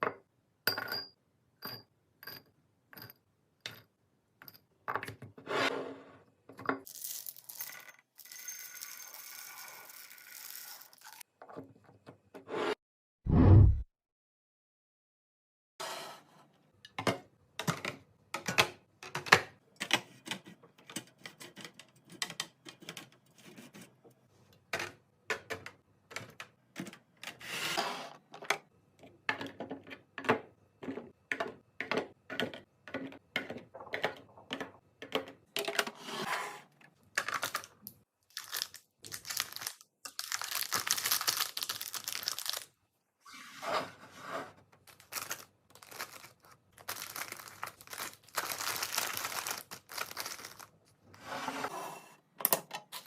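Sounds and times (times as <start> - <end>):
containers knocking and clicking: 24.7 - 27.2, 28.4 - 36.0
plastic packaging crinkling and tearing: 38.3 - 42.8, 44.9 - 50.7.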